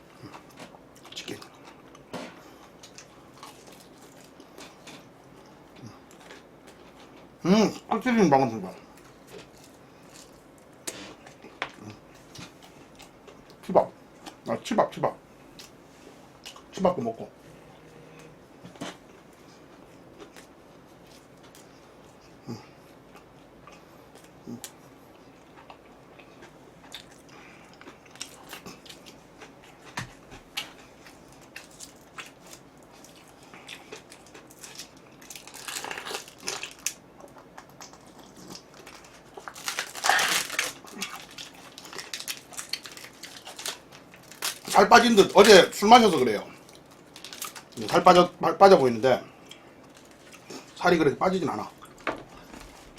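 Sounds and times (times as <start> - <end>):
quiet chewing: 17.8 - 44.3, 49.3 - 50.8
crunchy bites into fried chicken: 27.8 - 45.6.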